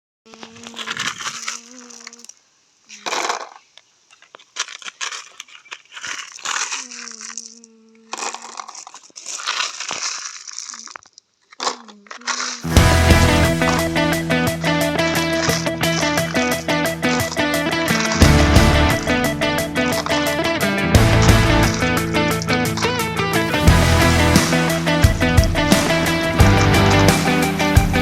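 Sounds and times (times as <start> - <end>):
crunching and crinkling: 0.3 - 28.0.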